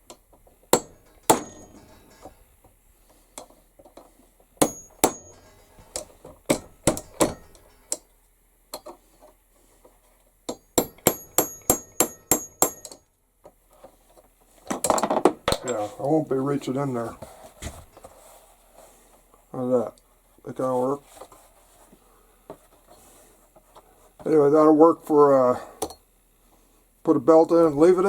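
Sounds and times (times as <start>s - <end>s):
hammer striking metal: 0.7s - 2.4s, 4.6s - 7.8s, 10.5s - 13.0s
light ringing hammer taps: 4.6s - 5.5s, 10.5s - 13.0s.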